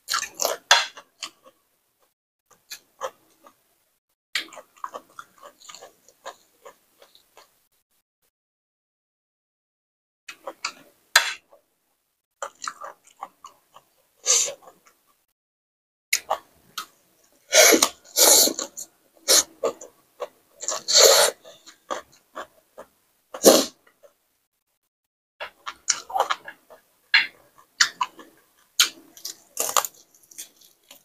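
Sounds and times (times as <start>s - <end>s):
person chewing crunchy greens: 0.0s - 1.6s, 4.4s - 7.5s, 12.4s - 15.0s, 17.6s - 24.2s, 25.4s - 31.0s.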